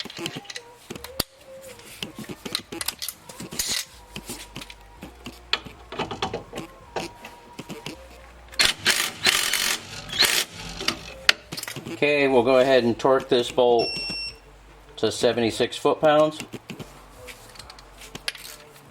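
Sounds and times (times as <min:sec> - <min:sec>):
tools clinking on metal: 0:00.0 - 0:07.1, 0:17.3 - 0:18.9
hand ratchet clicking: 0:00.0 - 0:12.0.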